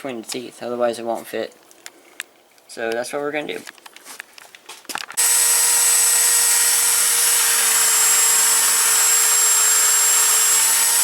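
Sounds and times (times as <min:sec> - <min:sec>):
power grinder grinding metal: 0:05.2 - 0:11.0.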